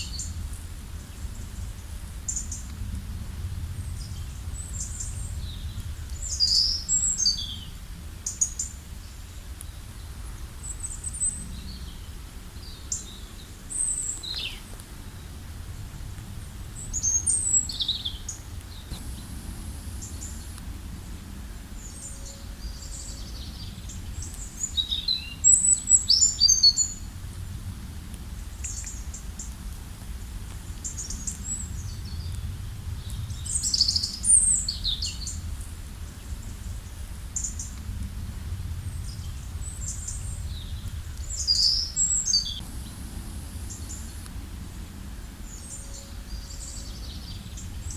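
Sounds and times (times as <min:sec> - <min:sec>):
steady low rumble: 0:00.1 - 0:07.0, 0:14.8 - 0:24.7, 0:27.0 - 0:47.9
songbirds chirping and trilling: 0:16.6 - 0:27.0, 0:39.0 - 0:47.9.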